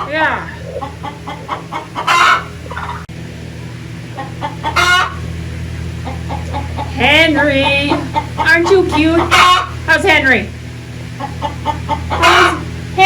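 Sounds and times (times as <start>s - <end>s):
soft clucks: 0.0s - 3.0s, 4.2s - 5.3s, 6.0s - 7.0s, 7.6s - 9.8s, 11.1s - 12.7s
poultry calling: 0.0s - 3.1s, 4.0s - 10.0s, 10.8s - 12.9s.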